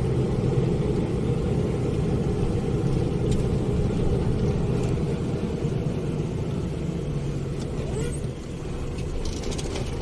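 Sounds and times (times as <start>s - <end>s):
truck diesel engine running: 0.0s - 10.0s.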